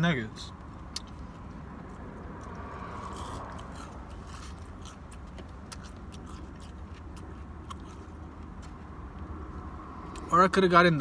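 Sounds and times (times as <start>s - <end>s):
chewing crispy food: 0.8s - 9.2s.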